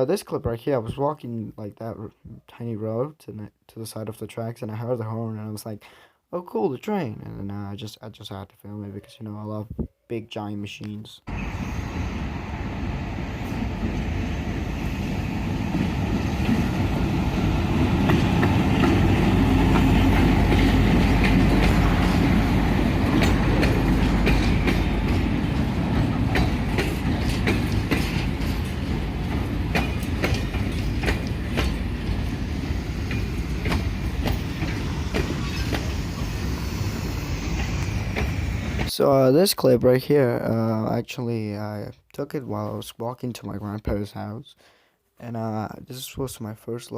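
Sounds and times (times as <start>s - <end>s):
train rumbling past: 11.3s - 39.0s
wheels clicking over rail joints: 15.7s - 36.1s.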